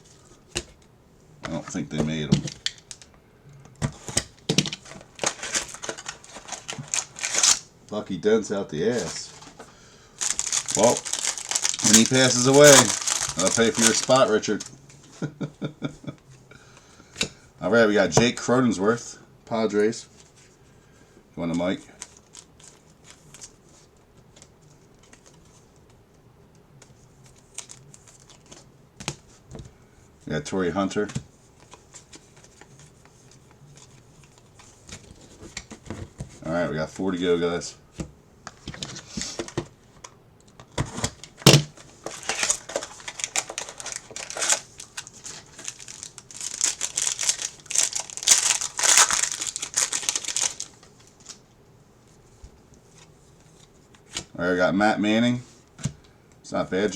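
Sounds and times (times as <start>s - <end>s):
wrapper tearing and crinkling: 5.1s - 7.7s, 10.2s - 14.7s, 41.3s - 51.4s.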